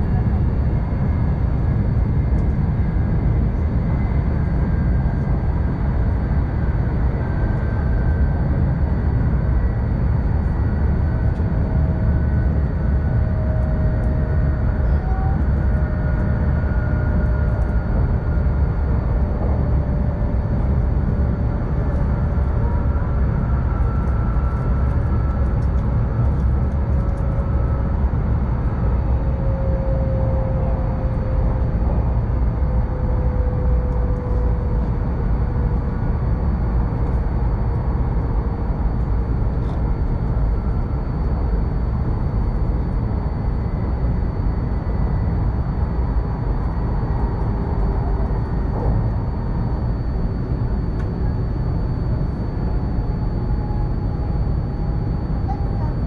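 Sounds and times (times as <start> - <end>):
wheels rumbling on rail: 9.2 - 43.2.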